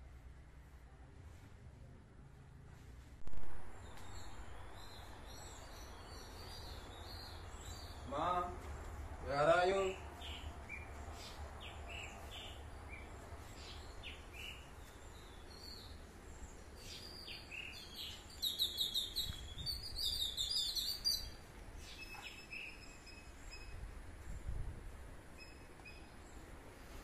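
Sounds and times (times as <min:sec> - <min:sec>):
low outdoor rumble: 0:00.0 - 0:17.2
birds chirping: 0:03.7 - 0:24.4
rapid repeated bird song: 0:03.7 - 0:27.0.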